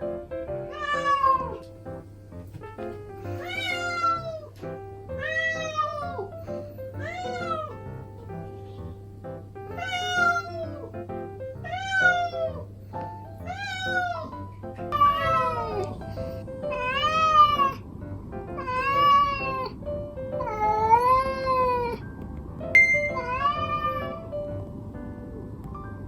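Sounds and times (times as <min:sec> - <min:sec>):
cat meowing: 0:00.6 - 0:01.7, 0:03.3 - 0:07.8, 0:09.7 - 0:11.0, 0:11.6 - 0:12.7, 0:13.4 - 0:17.8, 0:18.5 - 0:19.8, 0:20.4 - 0:22.0, 0:22.8 - 0:24.4.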